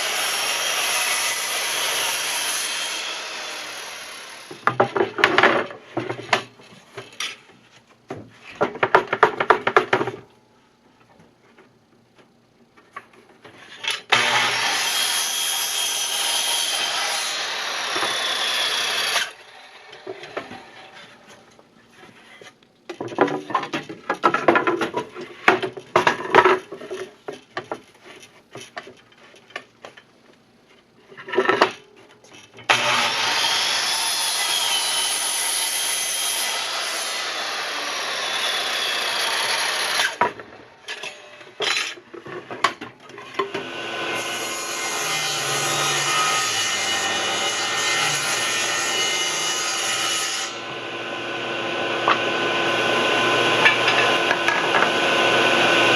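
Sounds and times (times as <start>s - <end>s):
power tool cutting wood: 0.0s - 4.6s, 14.1s - 21.0s, 32.7s - 40.2s, 43.5s - 55.9s
wood knocking and clattering: 22.9s - 30.0s.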